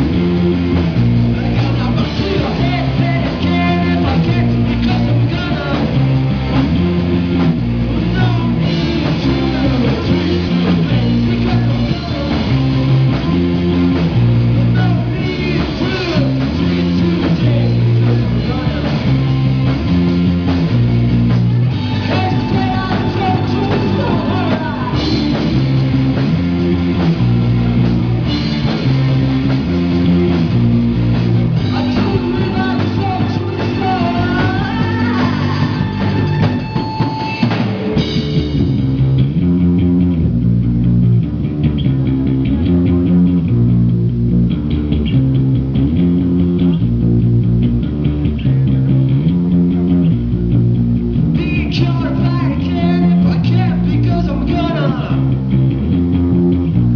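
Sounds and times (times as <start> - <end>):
rock band playing: 0.0 - 56.9
person singing: 1.4 - 6.1, 7.9 - 13.4, 14.5 - 19.4, 21.6 - 25.6, 31.6 - 36.7, 51.4 - 55.4.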